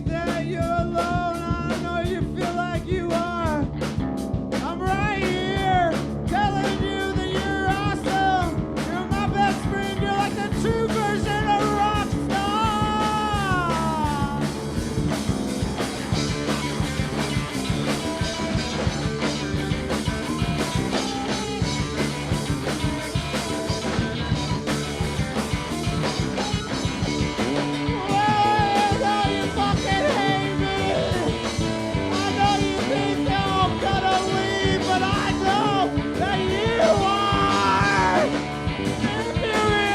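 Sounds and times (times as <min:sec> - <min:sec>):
person singing: 0:00.0 - 0:03.7, 0:04.6 - 0:14.6, 0:27.8 - 0:39.9
rock band playing: 0:00.0 - 0:39.9.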